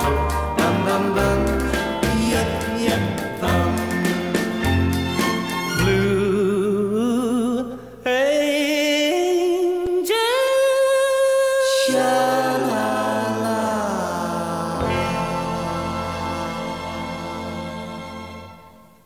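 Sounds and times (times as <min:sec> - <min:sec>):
person singing long wavering notes: 0:10.2 - 0:18.8.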